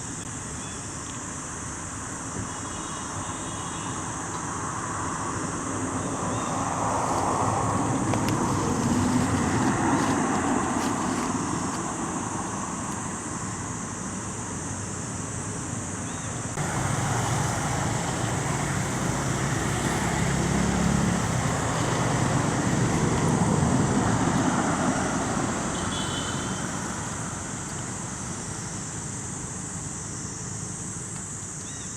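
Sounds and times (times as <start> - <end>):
road traffic noise: 0.0 - 31.9
vehicle passing: 4.7 - 12.8, 16.6 - 28.2.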